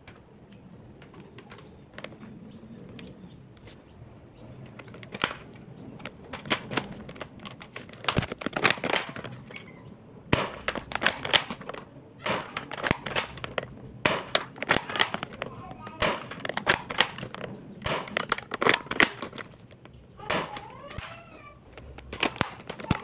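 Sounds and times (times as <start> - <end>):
airsoft gun plastic clicks: 4.6 - 9.7, 10.3 - 23.0.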